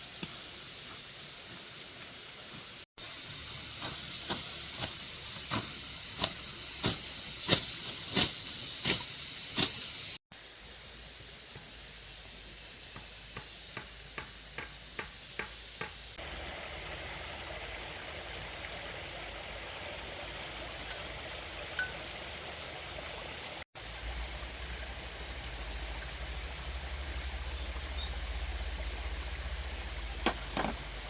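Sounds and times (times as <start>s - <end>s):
steady hiss: 0.0s - 31.0s
rushing water: 16.2s - 31.0s.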